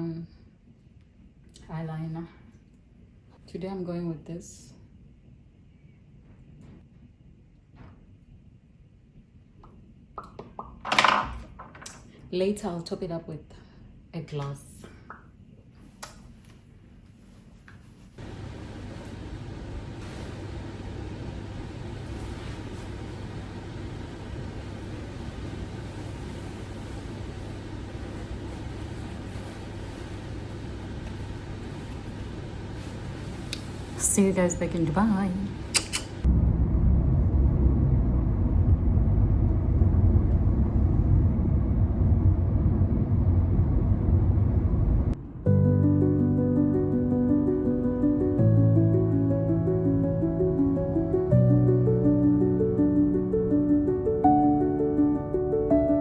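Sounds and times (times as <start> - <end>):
vehicle rumble from inside: 36.2 - 45.5.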